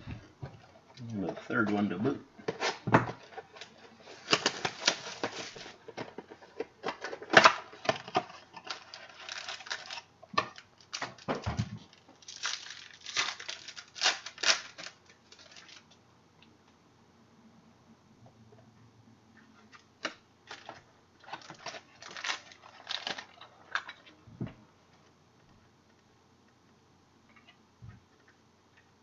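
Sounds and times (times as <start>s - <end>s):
packaging rustling: 2.4s - 16.0s, 20.0s - 24.1s.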